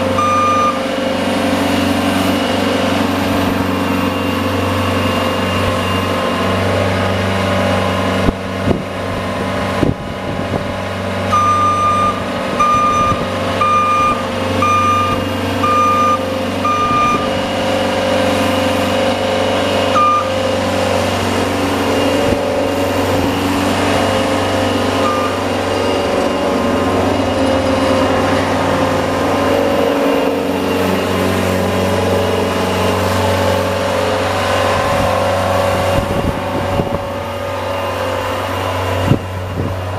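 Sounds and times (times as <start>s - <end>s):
reversing alarm beeping: 0.0s - 1.0s, 2.8s - 6.7s, 11.3s - 33.7s
snowplow engine running: 0.0s - 39.9s.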